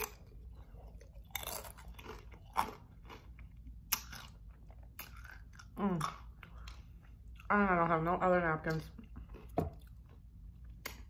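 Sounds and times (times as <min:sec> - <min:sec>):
chip crunching: 0:00.0 - 0:07.5.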